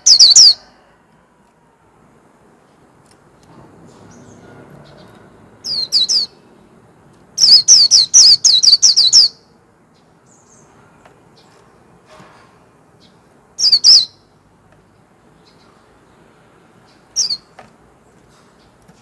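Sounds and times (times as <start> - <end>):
bird singing falling notes: 16.9 - 17.6.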